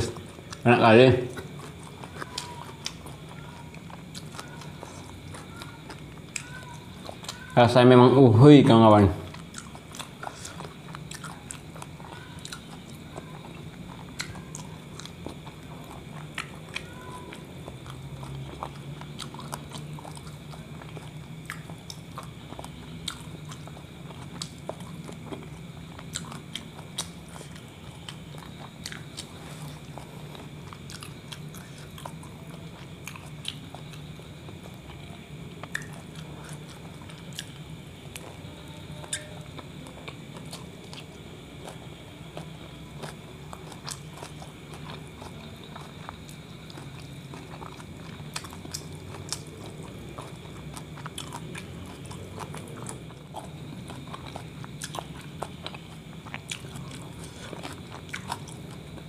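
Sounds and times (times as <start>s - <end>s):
person chewing with wet clicks: 0.0s - 7.6s, 9.2s - 59.0s
low steady hum: 0.0s - 59.0s.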